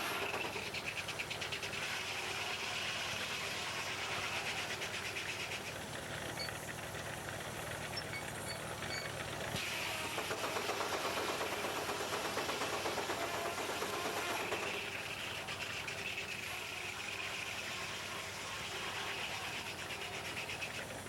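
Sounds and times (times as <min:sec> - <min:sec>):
hiss of steam: 0:01.5 - 0:05.4, 0:09.6 - 0:21.0.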